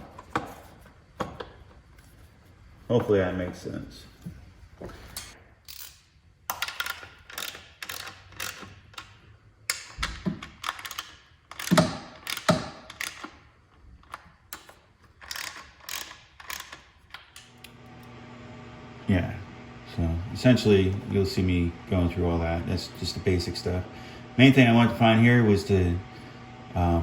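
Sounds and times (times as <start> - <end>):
hand ratchet clicking: 5.2 - 17.7.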